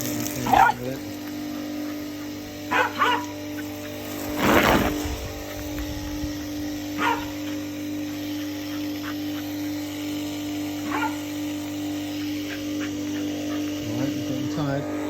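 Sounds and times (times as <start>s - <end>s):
pressure washer motor humming: 0.0s - 15.0s
dog barking: 0.4s - 3.7s, 6.9s - 7.6s, 10.8s - 11.4s.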